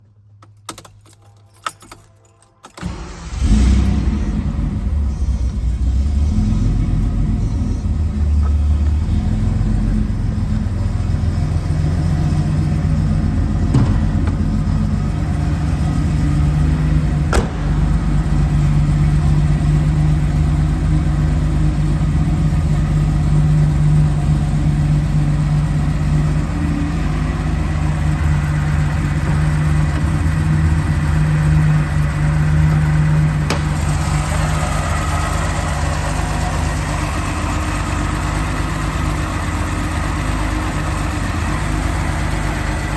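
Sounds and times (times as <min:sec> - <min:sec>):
car engine idling: 0:02.8 - 0:42.9.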